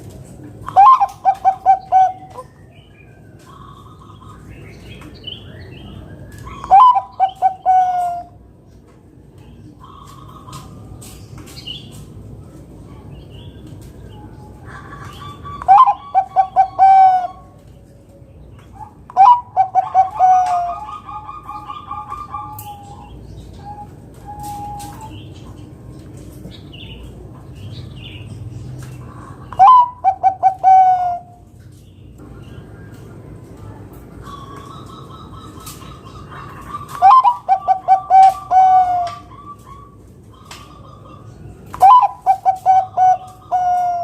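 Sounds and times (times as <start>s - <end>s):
dove cooing: 0.6s - 2.5s, 6.5s - 8.4s, 14.6s - 17.6s, 18.7s - 25.2s, 29.1s - 31.4s, 34.2s - 44.0s.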